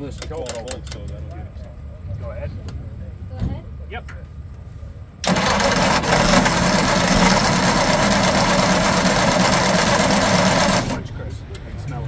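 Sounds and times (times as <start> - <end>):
race car engine at full throttle: 5.2 - 12.0.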